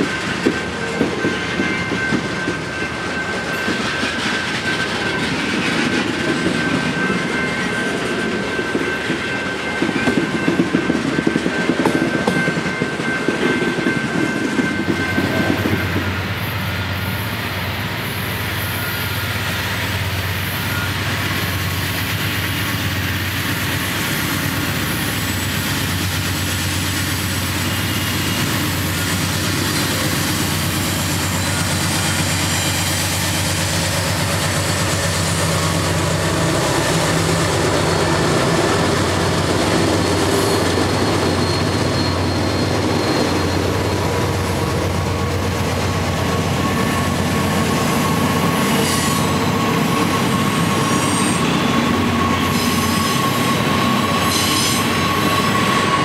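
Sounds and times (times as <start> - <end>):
diesel locomotive engine drone: 0.0 - 56.0
freight cars rolling on rails: 0.0 - 56.0.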